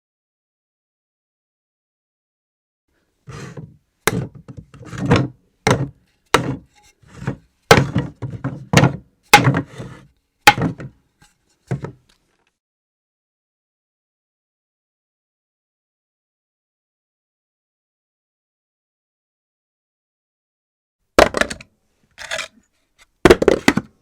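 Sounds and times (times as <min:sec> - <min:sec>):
objects thudding on wooden floor: 0:03.5 - 0:09.8, 0:10.5 - 0:10.9, 0:21.2 - 0:21.6.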